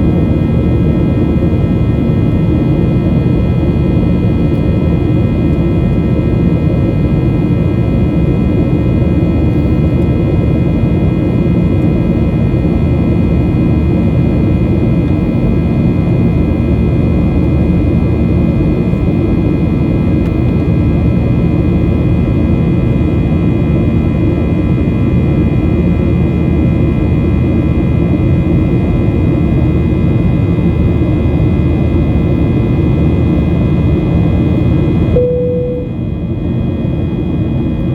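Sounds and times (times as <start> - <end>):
jet engine cabin rumble: 0.0 - 37.9
steady high tones: 35.2 - 36.0.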